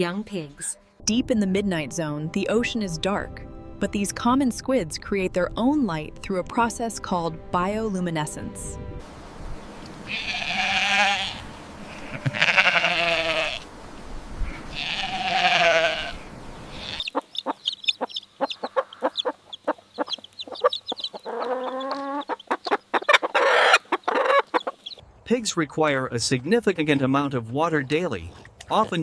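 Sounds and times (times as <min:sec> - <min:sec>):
animal bleating: 0:10.0 - 0:13.7, 0:14.5 - 0:17.2, 0:21.2 - 0:22.4.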